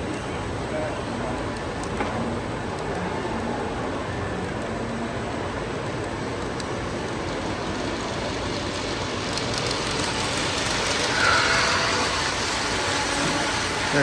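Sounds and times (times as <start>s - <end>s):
model train running on track: 0.0s - 14.0s
brief squeal: 11.0s - 14.0s.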